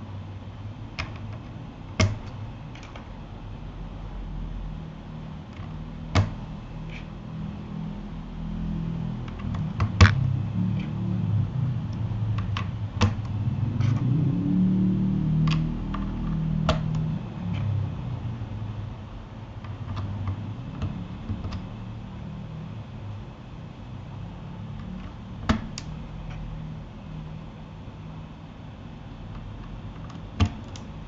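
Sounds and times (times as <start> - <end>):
low hum: 0.0 - 31.0
mechanical keyboard clicks: 15.4 - 17.8.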